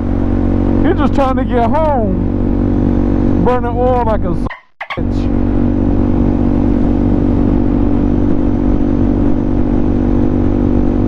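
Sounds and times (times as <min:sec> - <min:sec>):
motorcycle engine cruising: 0:00.0 - 0:11.0
wind noise: 0:02.2 - 0:11.0.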